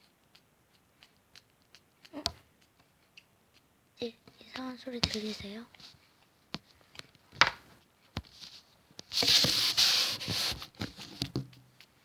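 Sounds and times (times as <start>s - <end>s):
hamster clicking: 0.0s - 6.3s
hamster hissing: 9.2s - 10.8s.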